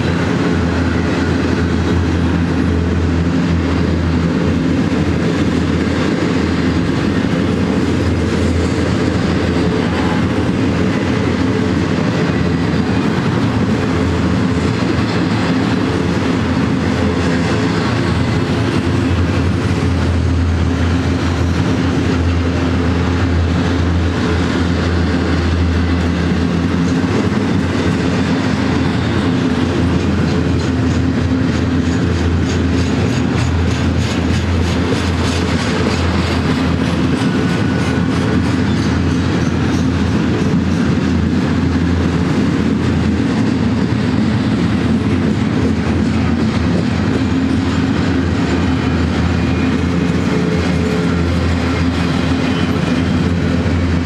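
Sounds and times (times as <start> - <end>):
freight train rumble: 0.0 - 54.0
wheels clacking over rail joints: 0.0 - 54.0.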